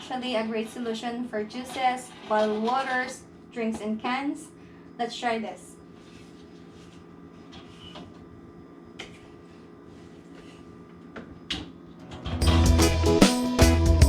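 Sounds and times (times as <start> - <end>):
steady low hum: 0.0 - 14.0
background music: 12.2 - 14.0.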